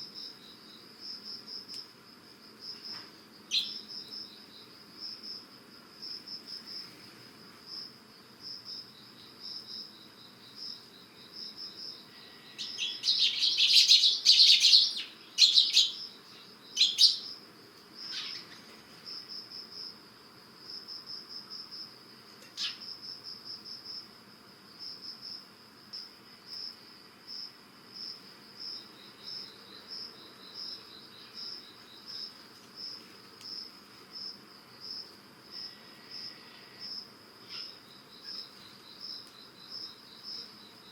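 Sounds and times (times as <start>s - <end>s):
insect pulsed trill: 2.6s - 6.9s, 7.7s - 40.9s
sparrows chirping: 3.5s - 4.7s, 11.8s - 17.4s, 18.0s - 18.7s, 22.5s - 22.9s.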